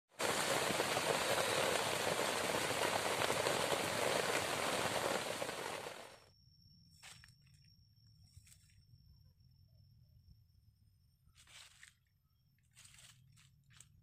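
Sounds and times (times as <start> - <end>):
heavy rain: 0.0 - 6.2.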